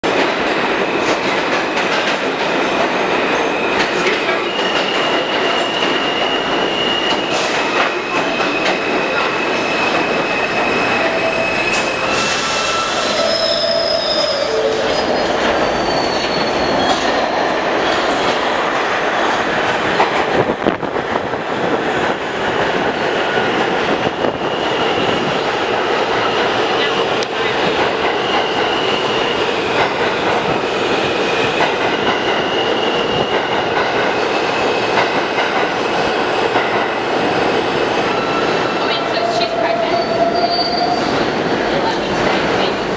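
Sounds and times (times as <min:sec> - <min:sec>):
subway train wheel and rail noise: 0:00.0 - 0:42.9
high-pitched wheel squeals: 0:04.6 - 0:17.2, 0:39.8 - 0:41.2.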